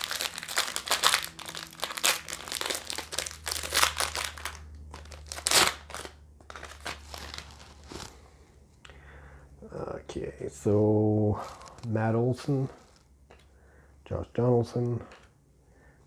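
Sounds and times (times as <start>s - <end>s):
plastic wrapper crinkling: 0.0s - 8.4s, 11.3s - 13.4s.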